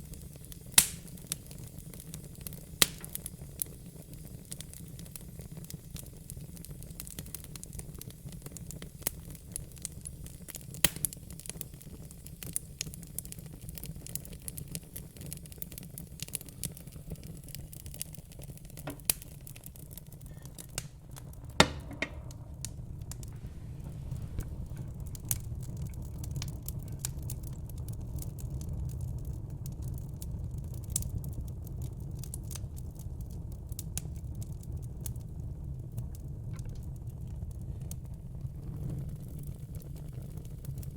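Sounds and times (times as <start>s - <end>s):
wood fire crackling and popping: 0.0s - 40.9s
low rumble: 19.9s - 28.1s.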